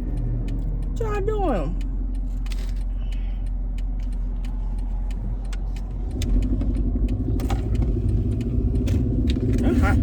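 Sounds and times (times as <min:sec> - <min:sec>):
engine and road rumble: 0:00.0 - 0:10.0
faint clicks: 0:01.7 - 0:09.4.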